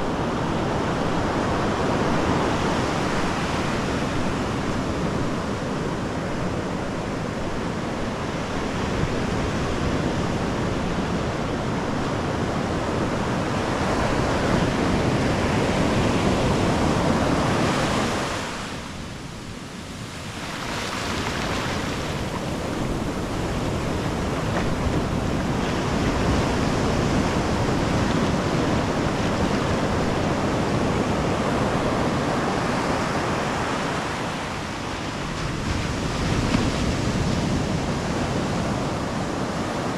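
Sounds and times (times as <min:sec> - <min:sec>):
ocean surf breaking: 0:11.3 - 0:39.9.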